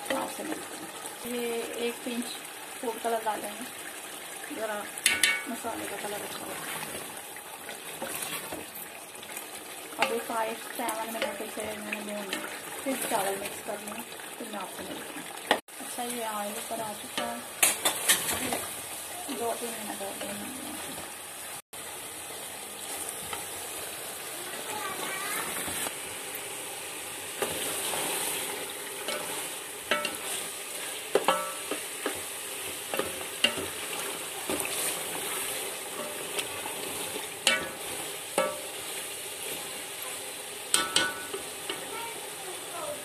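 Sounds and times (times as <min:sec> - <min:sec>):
food sizzling in oil: 0:00.0 - 0:43.0
spatula knocking against pot: 0:31.1 - 0:32.2.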